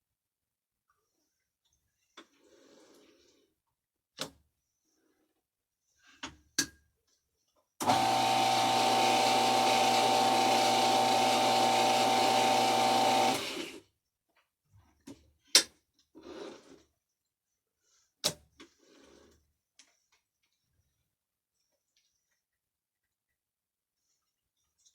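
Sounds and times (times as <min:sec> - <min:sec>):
metal lathe humming and whining: 0:07.8 - 0:13.8.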